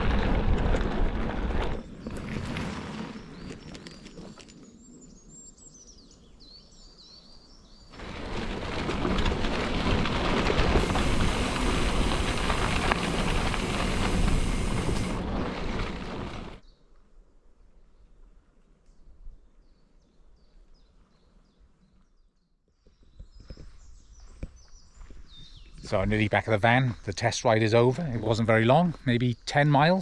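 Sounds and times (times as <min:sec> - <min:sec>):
bicycle rushing noise: 0:00.0 - 0:04.3, 0:07.9 - 0:16.6.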